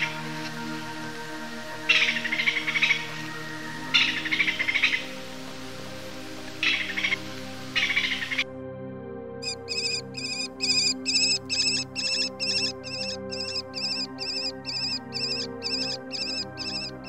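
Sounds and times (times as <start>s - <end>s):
background music: 0.0s - 17.0s
bird call: 9.4s - 17.0s.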